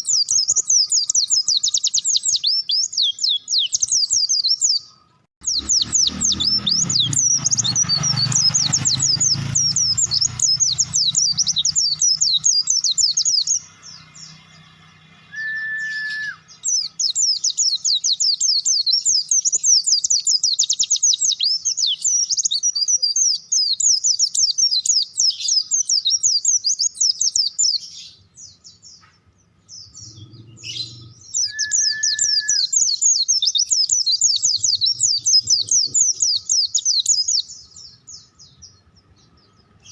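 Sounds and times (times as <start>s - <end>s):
bird twittering song: 0.0s - 39.9s
brief steady whistle: 15.3s - 16.4s, 31.4s - 32.7s.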